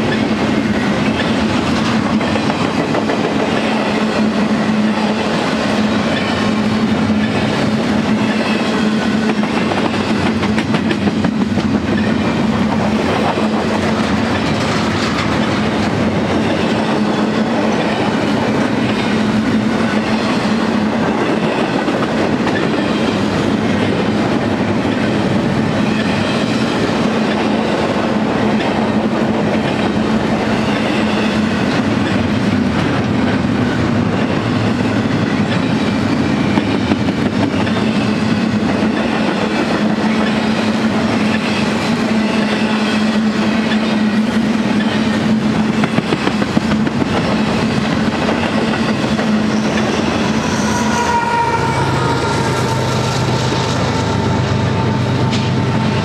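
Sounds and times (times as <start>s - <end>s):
locomotive whine: 0.0s - 56.0s
train wheels rumbling and clacking: 0.0s - 56.0s
locomotive engine drone: 41.9s - 56.0s.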